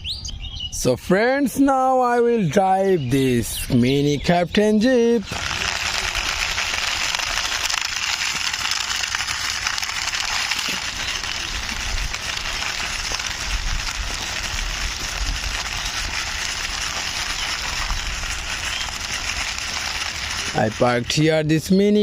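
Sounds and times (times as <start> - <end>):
toy wheels rolling and scraping: 4.6 - 22.0.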